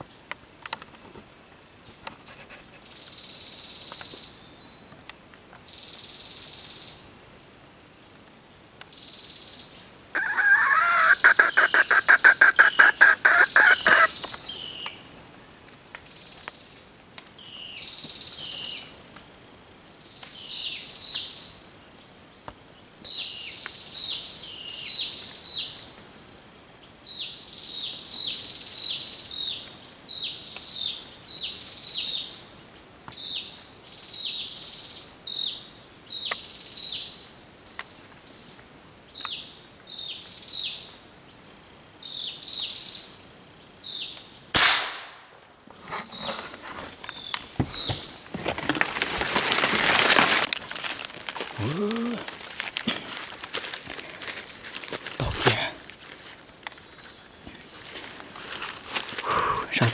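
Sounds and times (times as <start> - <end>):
small bird chirping: 8.9 - 15.0
gunshot crack: 44.6 - 45.3.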